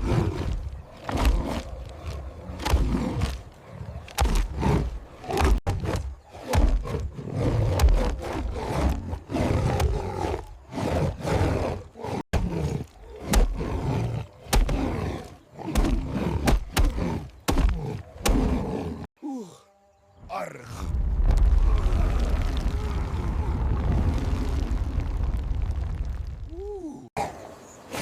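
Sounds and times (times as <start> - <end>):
big cat roaring and growling: 0.0 - 19.1.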